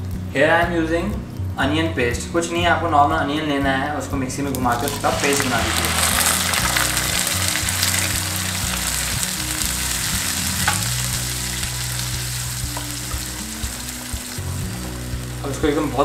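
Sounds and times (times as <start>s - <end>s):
onion paste sizzling in hot oil: 4.4s - 16.0s.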